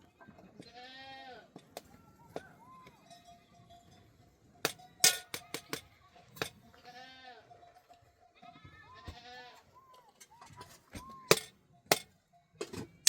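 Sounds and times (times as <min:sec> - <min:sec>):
livestock bleating: 0:00.6 - 0:01.5, 0:06.7 - 0:07.5, 0:08.4 - 0:09.8.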